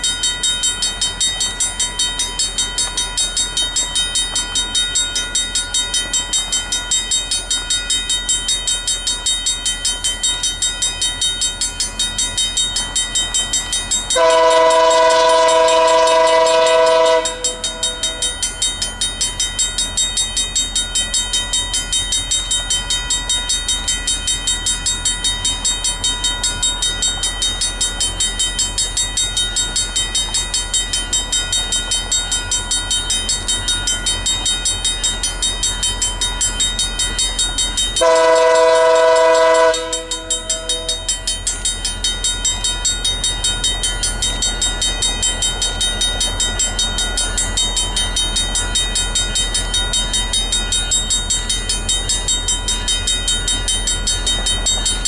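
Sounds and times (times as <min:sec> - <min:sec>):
train wheels clattering: 0:10.4 - 0:55.0
multi-note train horn: 0:14.2 - 0:18.3, 0:38.0 - 0:41.1.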